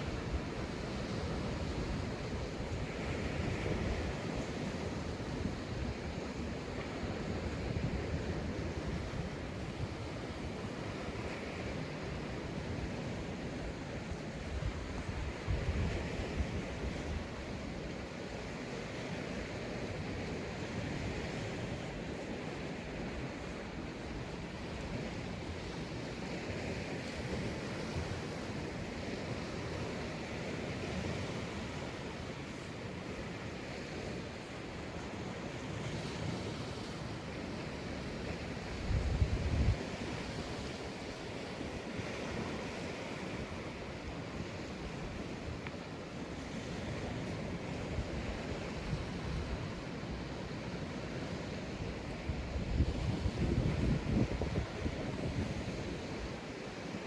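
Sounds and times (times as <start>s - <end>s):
small waves washing up beach: 0.0s - 57.0s
wind buffeting microphone: 38.7s - 40.0s, 51.8s - 56.4s.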